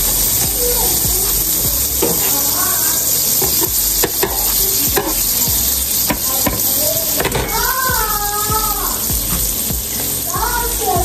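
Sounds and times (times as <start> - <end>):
pancakes sizzling on a griddle: 0.0 - 11.0
metal spatula clicking on griddle: 3.3 - 5.3.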